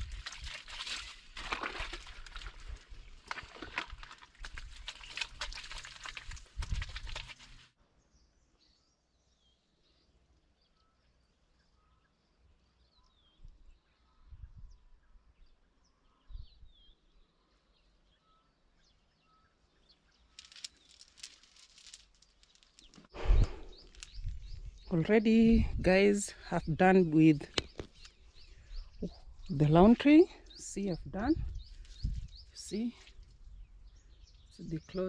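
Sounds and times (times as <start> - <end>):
rustling or splashing: 0.0 - 7.8, 20.4 - 24.8
birds chirping and whistling: 22.8 - 26.8, 27.5 - 32.8.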